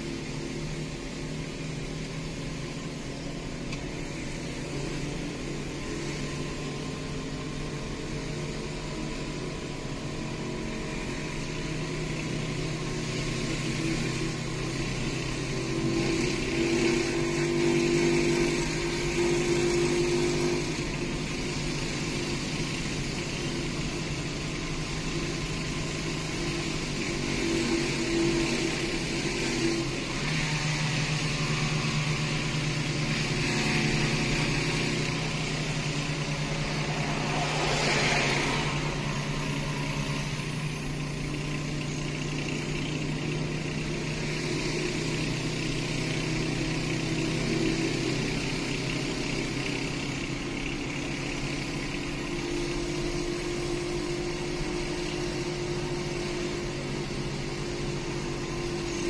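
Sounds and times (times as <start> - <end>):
road and tyre noise: 0.0 - 59.0
small motorcycle engine running: 0.0 - 59.0
rush of noise: 33.4 - 41.7.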